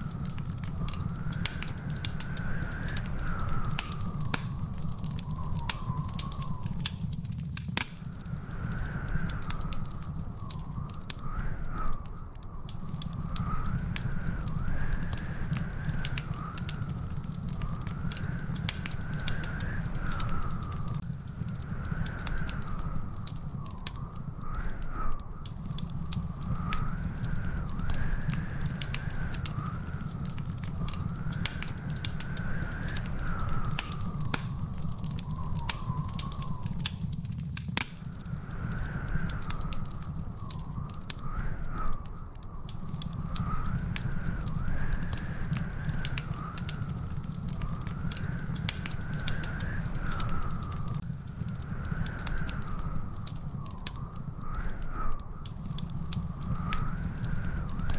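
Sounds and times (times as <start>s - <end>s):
wood fire crackling and popping: 0.0s - 57.9s
thin wavering whistle: 1.7s - 7.2s, 30.8s - 37.1s.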